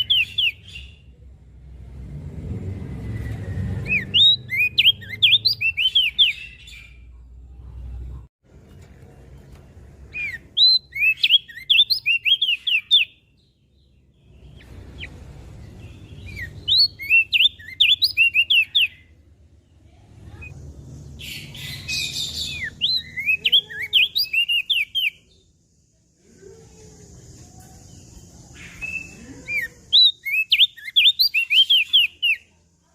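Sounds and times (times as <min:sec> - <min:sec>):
bird high chirping song: 0:00.0 - 0:01.3, 0:03.0 - 0:08.0, 0:09.5 - 0:25.6, 0:27.1 - 0:32.6.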